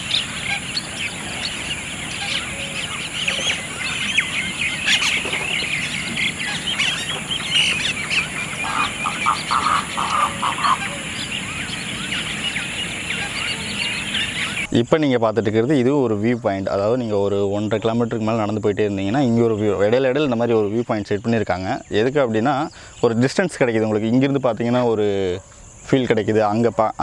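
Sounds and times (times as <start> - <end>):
bird giving low calls: 0.0 - 14.8
birds chirping in chorus: 0.0 - 27.0.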